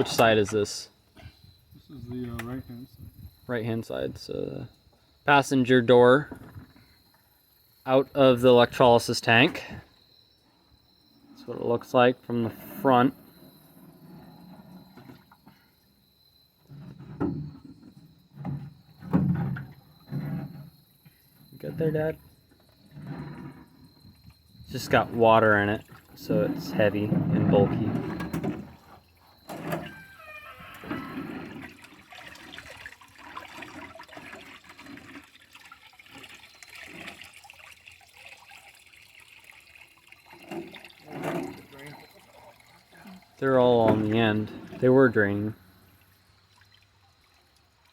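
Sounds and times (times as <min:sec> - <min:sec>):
water pouring and splashing: 0:21.6 - 0:47.9.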